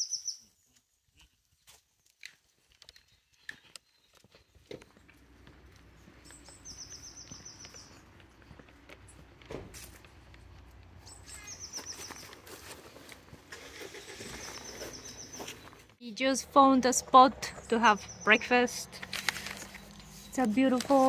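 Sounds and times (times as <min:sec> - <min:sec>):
songbird high trill: 0:00.0 - 0:00.4, 0:06.3 - 0:08.0, 0:11.1 - 0:12.3, 0:13.8 - 0:15.7
footsteps on dry leaves: 0:04.9 - 0:15.9, 0:19.0 - 0:21.0.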